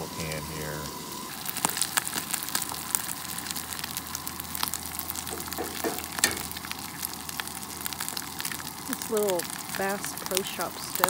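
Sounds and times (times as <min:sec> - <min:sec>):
food sizzling in a skillet: 0:00.0 - 0:11.0
egg cracked against pan: 0:04.7 - 0:08.8.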